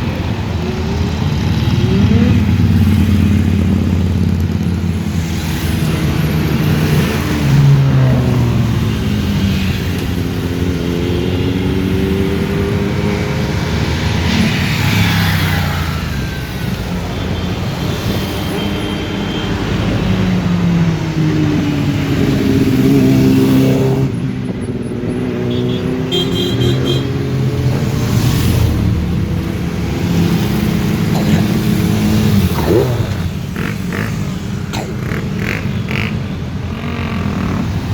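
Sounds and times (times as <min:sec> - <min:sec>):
motorcycle engines revving: 0:00.0 - 0:37.9.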